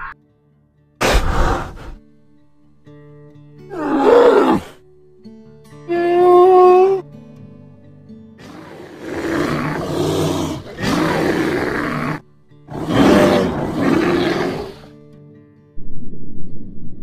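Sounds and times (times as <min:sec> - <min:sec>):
soft background music: 0:00.1 - 0:16.0
bear roaring: 0:03.7 - 0:04.8, 0:05.9 - 0:07.0, 0:08.4 - 0:14.9.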